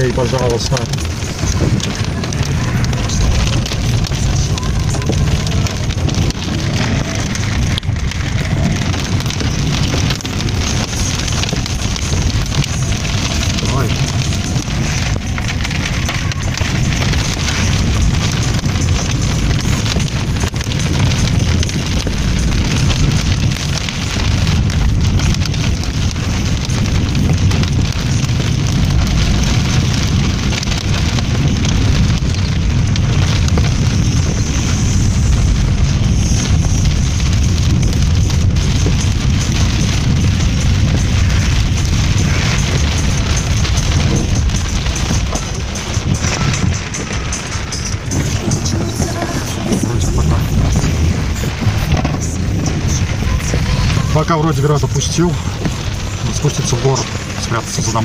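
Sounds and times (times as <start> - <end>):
hail drumming on car roof: 0.0 - 58.0
low rumble: 0.0 - 58.0.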